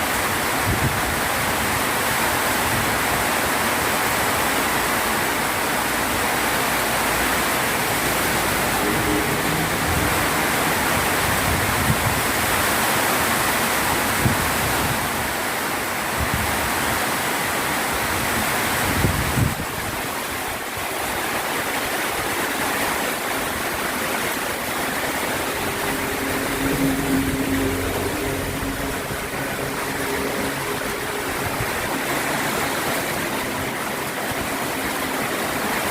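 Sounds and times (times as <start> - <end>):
heavy rain pouring: 0.0 - 35.9.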